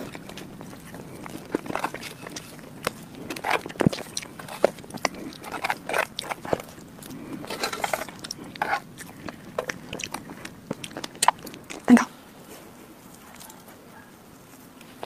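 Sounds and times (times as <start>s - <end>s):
lip smacks and clicks: 0.0s - 11.9s
wet sticky chewing: 0.0s - 12.2s.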